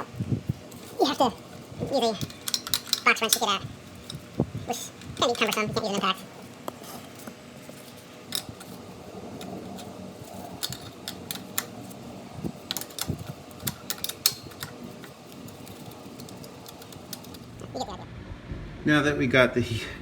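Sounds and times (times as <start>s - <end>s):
low background hum: 0.0s - 20.0s
wrench metal clicks: 0.7s - 6.2s, 8.3s - 8.8s, 9.4s - 17.8s.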